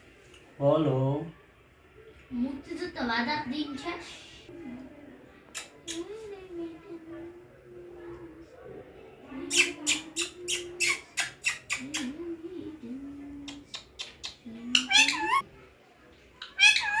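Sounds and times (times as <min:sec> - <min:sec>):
parakeet squawking: 0:14.7 - 0:15.4, 0:16.4 - 0:17.0
parakeet warbling call: 0:14.7 - 0:15.4, 0:16.4 - 0:17.0.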